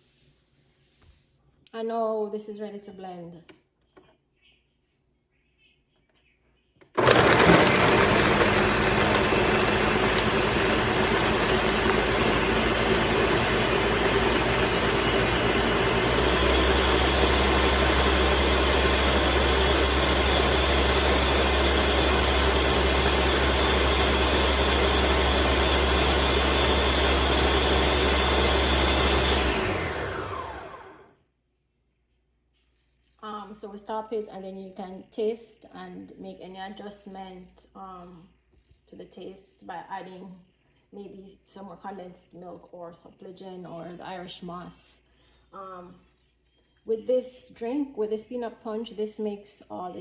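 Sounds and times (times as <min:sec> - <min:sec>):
electric blender running: 0:07.0 - 0:31.1.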